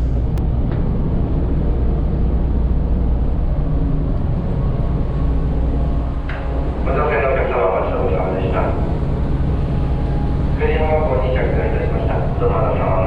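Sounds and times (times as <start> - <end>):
ferry engine rumble: 0.0 - 13.0.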